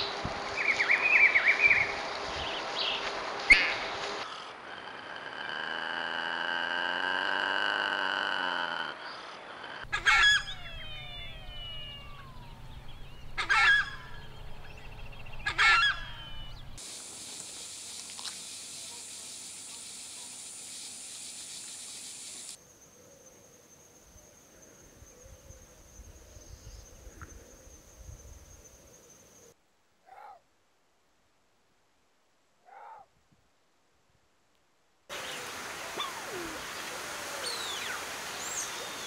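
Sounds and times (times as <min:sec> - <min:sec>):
large bird calling: 0:09.0 - 0:16.8
low rumble: 0:10.5 - 0:16.8
steady high hiss: 0:16.1 - 0:22.9, 0:35.1 - 0:39.0.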